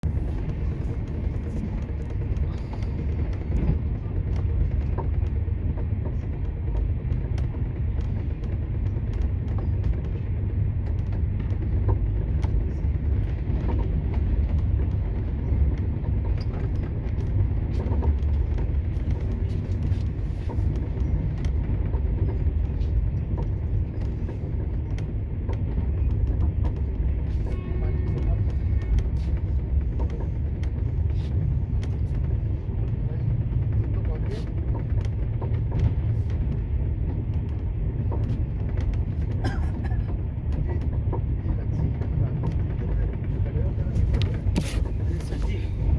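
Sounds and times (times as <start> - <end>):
moving vehicle rumble: 0.0 - 45.9.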